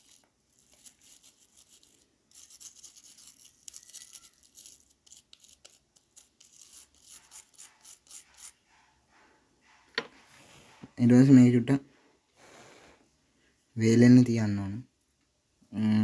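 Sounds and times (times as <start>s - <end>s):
small brush scrubbing circuit board: 0.0s - 9.0s.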